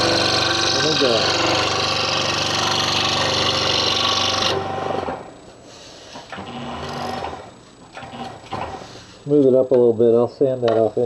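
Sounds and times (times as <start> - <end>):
saw blade cutting wood: 0.0 - 5.2
saw motor hum: 0.0 - 5.4, 6.3 - 8.6.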